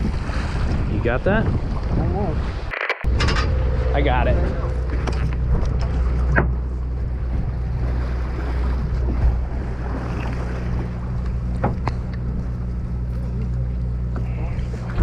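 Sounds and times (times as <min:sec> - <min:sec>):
boat engine droning: 0:00.0 - 0:15.0
water noise: 0:00.0 - 0:15.0
wind: 0:00.0 - 0:15.0.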